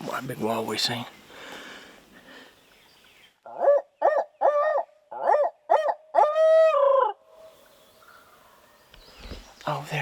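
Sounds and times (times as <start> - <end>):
owl hoots: 3.5 - 7.2.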